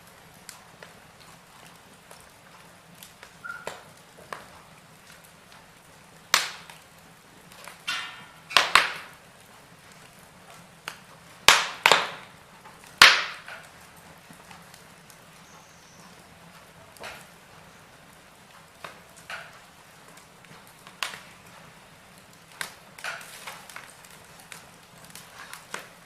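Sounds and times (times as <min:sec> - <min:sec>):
faint steady hiss: 0:00.0 - 0:26.0
wood fire crackling and popping: 0:00.0 - 0:26.0.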